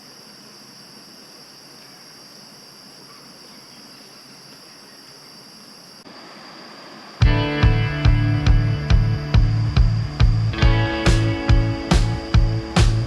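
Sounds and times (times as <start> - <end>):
loud guitar music: 7.2 - 13.0.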